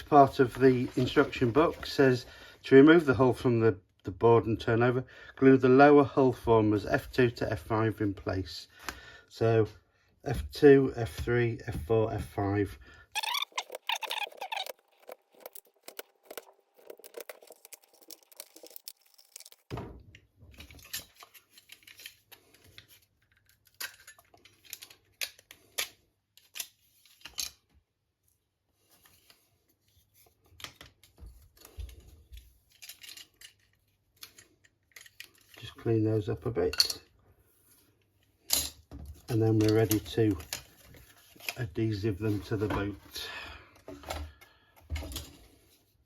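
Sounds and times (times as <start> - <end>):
wooden parts clicking and scratching: 11.9 - 19.7, 20.5 - 27.6, 30.4 - 35.7, 38.4 - 43.1.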